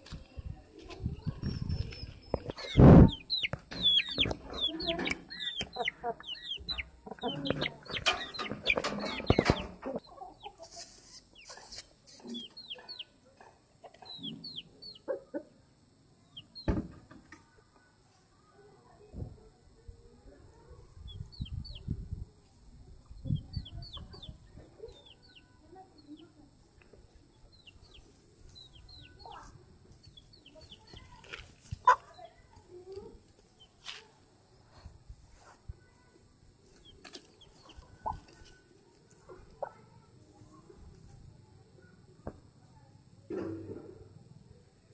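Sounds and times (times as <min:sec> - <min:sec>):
chickens clucking: 0:01.3 - 0:13.2, 0:13.8 - 0:15.6, 0:23.1 - 0:25.5, 0:27.4 - 0:32.2, 0:36.7 - 0:38.6
high falling chirps: 0:01.6 - 0:13.2
fowl clucking: 0:02.5 - 0:13.1.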